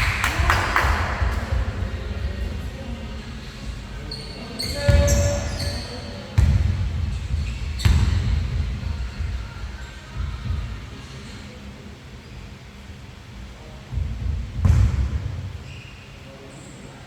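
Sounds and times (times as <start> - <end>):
basketball bouncing on gym floor: 0.0 - 10.9, 13.9 - 15.7.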